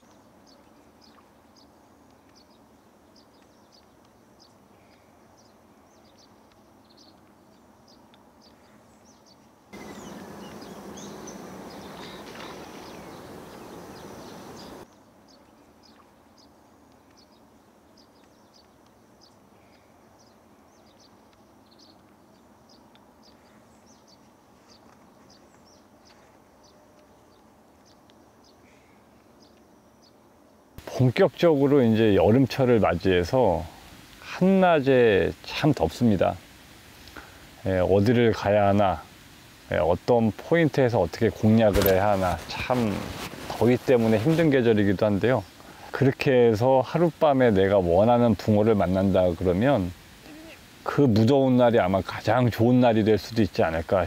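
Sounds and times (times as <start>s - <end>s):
soft steady hiss: 0.0s - 54.0s
high bird chirps: 9.8s - 14.8s.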